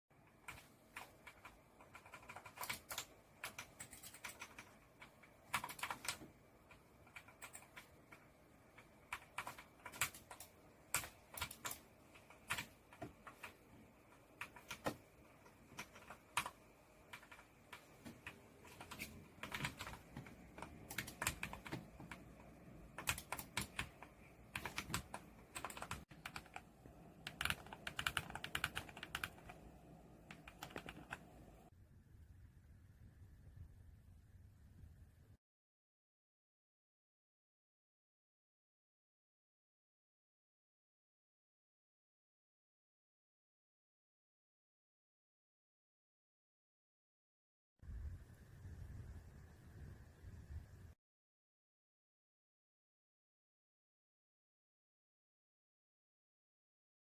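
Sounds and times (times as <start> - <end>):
keyboard typing: 0.2 - 31.7.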